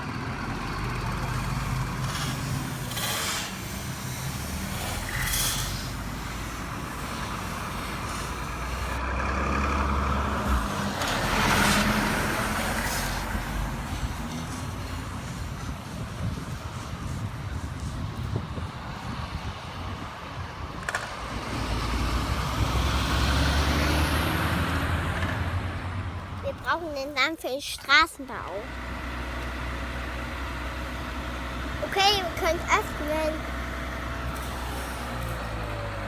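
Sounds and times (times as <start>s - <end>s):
truck engine running: 0.0s - 20.9s
short hissing bursts: 1.4s - 9.0s, 34.3s - 36.0s.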